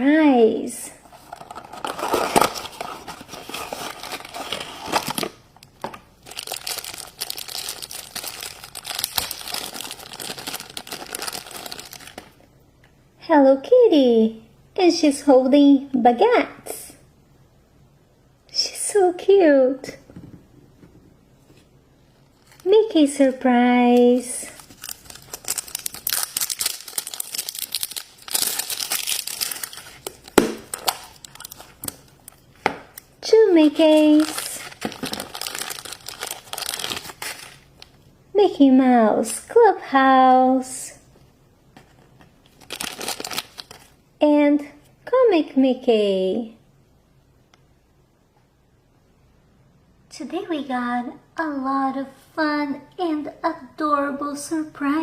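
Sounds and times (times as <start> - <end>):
plastic wrapping crinkling and tearing: 1.1 - 12.4, 22.3 - 22.8, 24.4 - 33.1, 33.8 - 38.0, 41.8 - 44.0.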